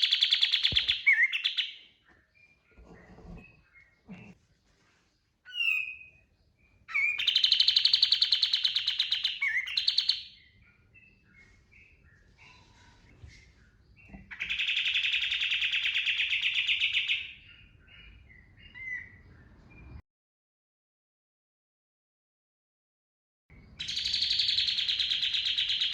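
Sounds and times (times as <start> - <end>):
bird rapid trilled song: 0.0 - 2.8, 5.5 - 12.3, 13.8 - 19.2, 23.7 - 25.9
bird chirps: 0.0 - 20.0, 23.5 - 25.9.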